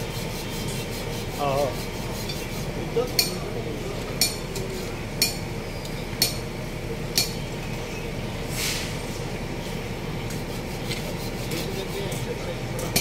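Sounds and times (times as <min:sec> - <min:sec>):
short hiss: 0:08.5 - 0:09.0.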